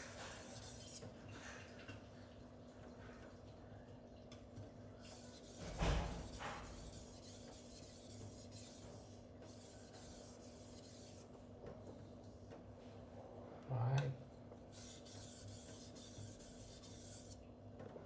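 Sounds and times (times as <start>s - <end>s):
thump: 5.6s - 6.8s.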